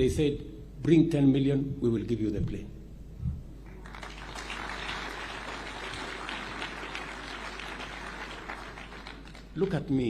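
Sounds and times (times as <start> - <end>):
audience applauding: 3.8 - 9.6.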